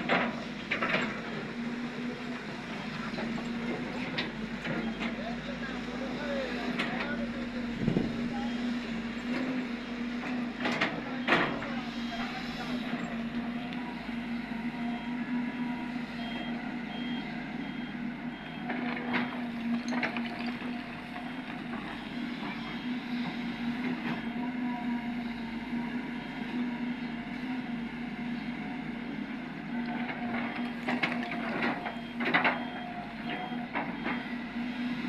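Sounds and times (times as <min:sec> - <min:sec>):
diesel machinery droning: 0:00.0 - 0:35.0
reversing beeper: 0:08.0 - 0:08.9, 0:11.2 - 0:19.6, 0:30.5 - 0:34.4.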